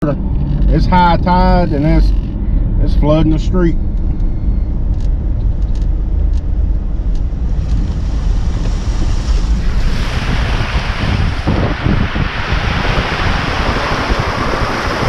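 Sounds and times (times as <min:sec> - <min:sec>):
vehicle rumble: 0:00.0 - 0:15.0
wind buffeting microphone: 0:00.0 - 0:15.0
rushing hiss: 0:07.6 - 0:15.0.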